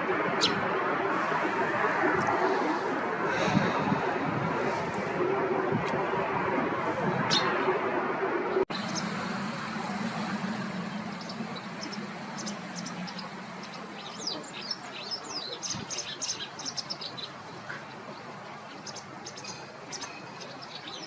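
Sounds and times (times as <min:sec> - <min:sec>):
wagtail high chirps: 0:08.7 - 0:17.4.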